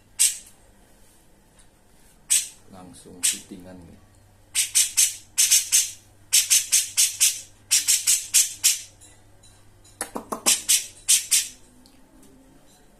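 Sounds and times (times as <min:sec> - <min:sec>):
bird harsh rasping chatter: 0:02.3 - 0:02.6, 0:03.2 - 0:03.5, 0:04.6 - 0:08.9, 0:10.5 - 0:11.6.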